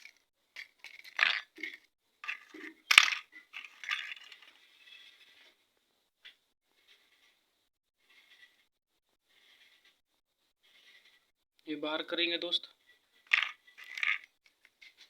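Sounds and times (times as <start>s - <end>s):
piston rings clinking: 0.0s - 4.6s, 13.3s - 14.3s.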